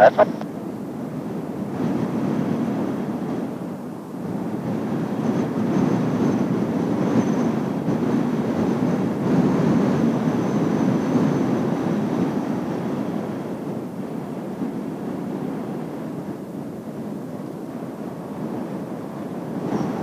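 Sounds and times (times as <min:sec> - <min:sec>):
high turbine whine: 0:00.0 - 0:00.5
jet engines roaring overhead: 0:00.0 - 0:14.3.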